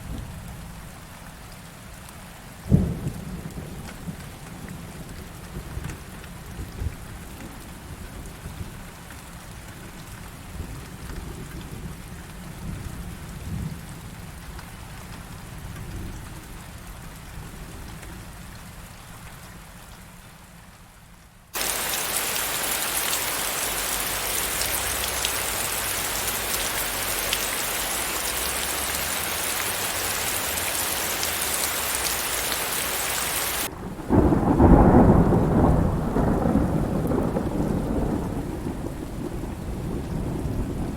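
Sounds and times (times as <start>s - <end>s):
heavy pouring rain: 0.0s - 20.8s, 21.5s - 40.9s
loud thunderclap: 21.6s - 40.9s
rolling thunder: 21.6s - 40.9s.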